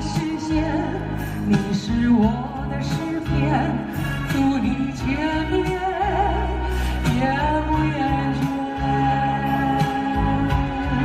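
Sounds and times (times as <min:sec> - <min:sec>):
bass notes: 0:00.0 - 0:11.0
person singing with vibrato: 0:00.0 - 0:11.0.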